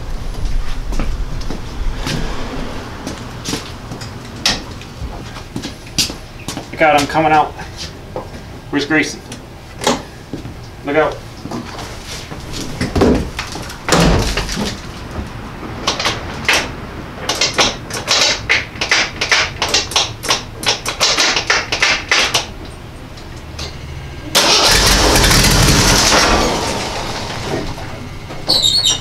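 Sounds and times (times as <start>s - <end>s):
car engine cranking: 23.6s - 29.0s.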